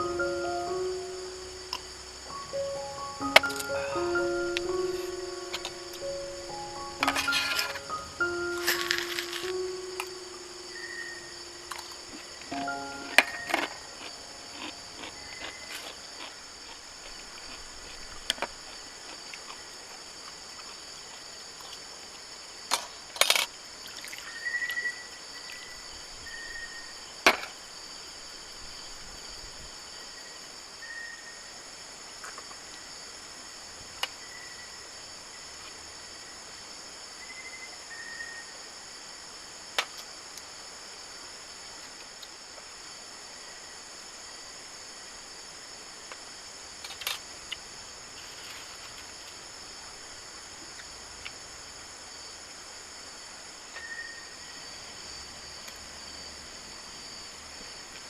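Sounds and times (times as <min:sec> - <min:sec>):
short high chirps: 0:00.0 - 0:11.8
insects droning: 0:00.0 - 0:58.0.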